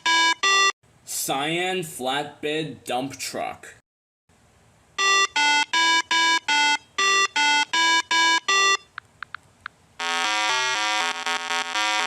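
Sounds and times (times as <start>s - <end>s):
electronic beeping melody: 0.0s - 0.7s, 5.0s - 8.9s.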